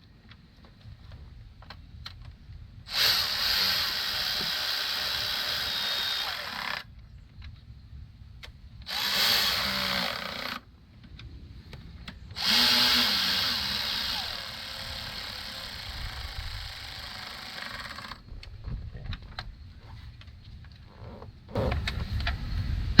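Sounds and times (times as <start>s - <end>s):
power drill spinning: 2.9s - 6.9s, 8.8s - 10.6s, 12.3s - 18.3s.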